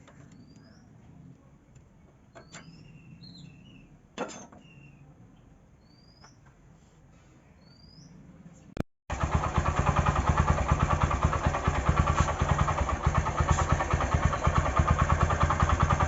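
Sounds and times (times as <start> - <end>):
faint bird chirps: 0.0 - 1.1, 2.3 - 4.0, 4.6 - 6.6, 7.4 - 8.7.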